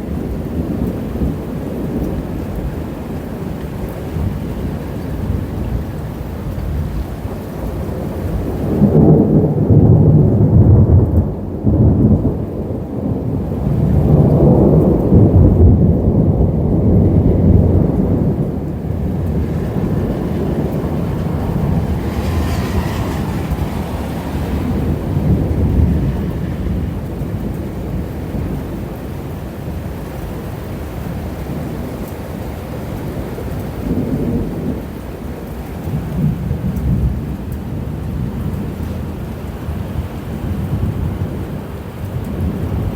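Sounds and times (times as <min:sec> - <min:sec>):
thunder rumbling: 0:00.0 - 0:42.9
rain hissing: 0:13.5 - 0:29.8.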